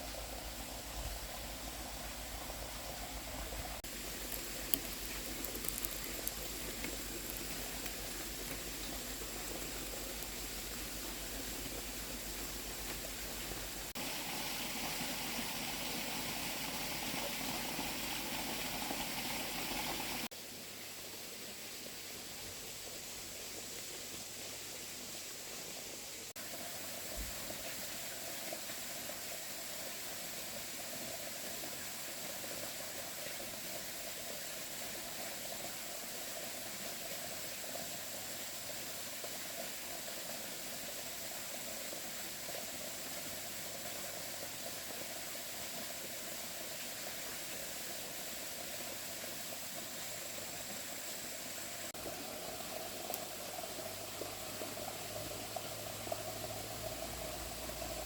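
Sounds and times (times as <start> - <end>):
steady hissing: 0.0 - 20.3.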